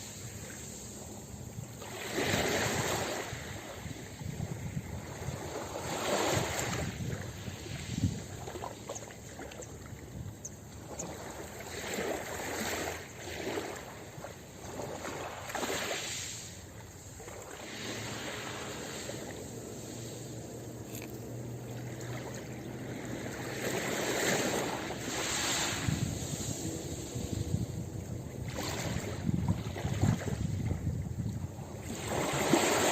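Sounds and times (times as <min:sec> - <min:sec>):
ocean surf washing onto beach: 0:15.0 - 0:32.9.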